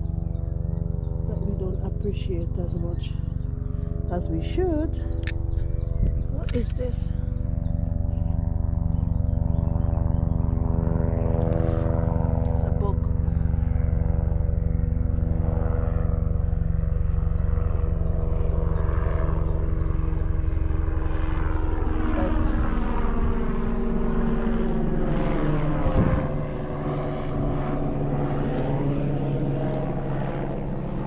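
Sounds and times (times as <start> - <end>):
helicopter flying over: 0.0 - 31.0.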